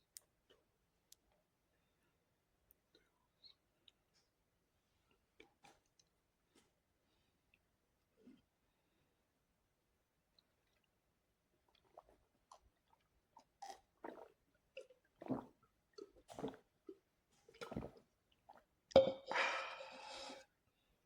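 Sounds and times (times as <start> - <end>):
chewing and mouth noises: 11.7 - 18.6.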